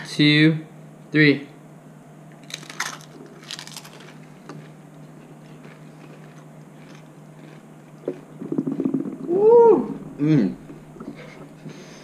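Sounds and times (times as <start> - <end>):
chips crunching and chewing: 2.4 - 4.8, 5.4 - 9.2.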